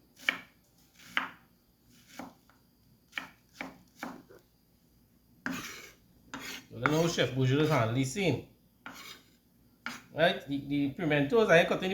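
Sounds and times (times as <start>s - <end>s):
knife chopping on cutting board: 0.2s - 1.4s, 2.0s - 2.4s, 3.1s - 4.4s, 5.4s - 7.8s, 8.8s - 9.2s, 9.8s - 10.1s
knife scraping cutting board: 0.2s - 2.4s, 5.4s - 8.0s, 8.8s - 10.1s.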